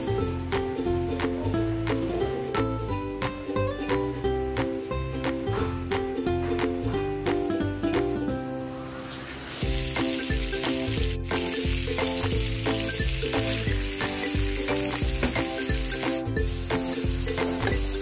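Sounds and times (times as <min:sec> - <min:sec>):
light background music: 0:00.0 - 0:18.0
butter and garlic sizzling in wok: 0:08.9 - 0:18.0.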